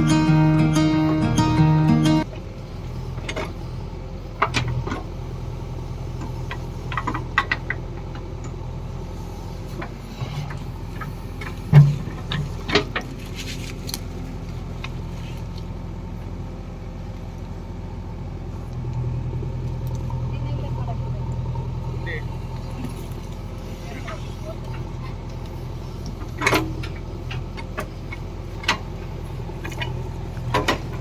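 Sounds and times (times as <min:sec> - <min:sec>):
diesel engine running: 0:00.0 - 0:31.0
metallic clanks and knocks: 0:11.4 - 0:13.1.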